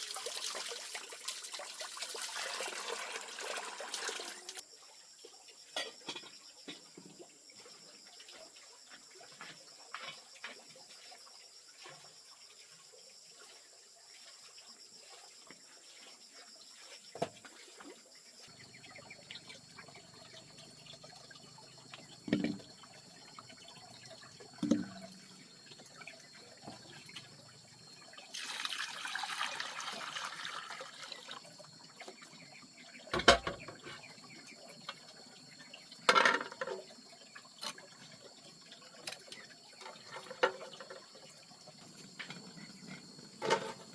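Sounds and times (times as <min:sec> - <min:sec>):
water pouring: 0:00.0 - 0:04.6, 0:17.7 - 0:42.5.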